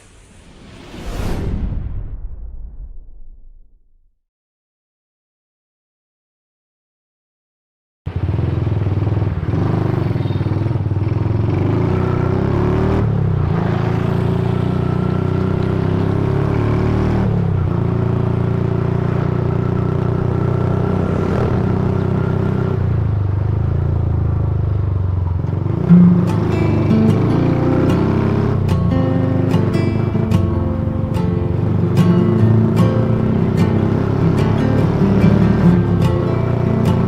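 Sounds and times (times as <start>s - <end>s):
motorcycle engine running: 8.1s - 37.0s.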